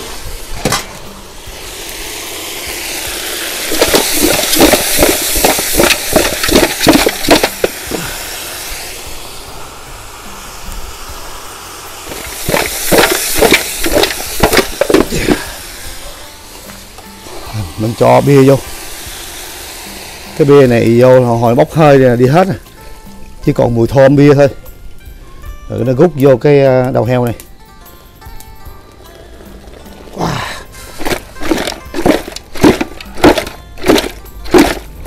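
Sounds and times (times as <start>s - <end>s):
meat sizzling in a pot: 0.0s - 24.5s.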